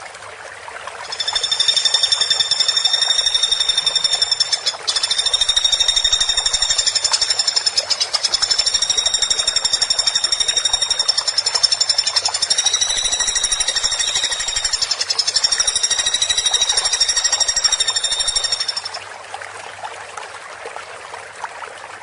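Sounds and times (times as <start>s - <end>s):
woodpecker rattling call: 1.0s - 19.0s.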